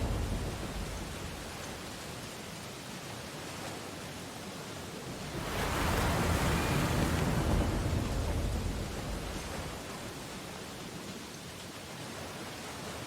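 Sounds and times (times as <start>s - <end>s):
ocean waves breaking on beach: 0.0s - 13.0s.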